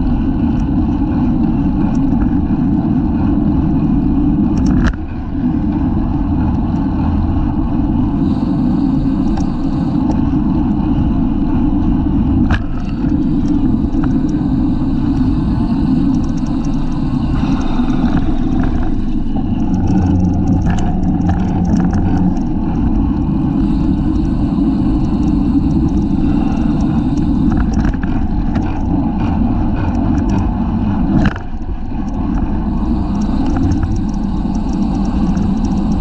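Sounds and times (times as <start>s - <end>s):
road and tyre rumble: 0.0s - 36.0s
wind rushing over microphone: 0.0s - 36.0s
light ticks and rattles: 12.4s - 36.0s.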